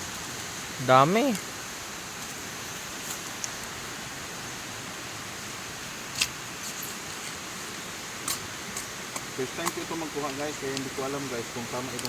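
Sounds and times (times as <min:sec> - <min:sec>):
rain hissing: 0:00.0 - 0:12.0
light snaps or rustles: 0:06.1 - 0:07.4.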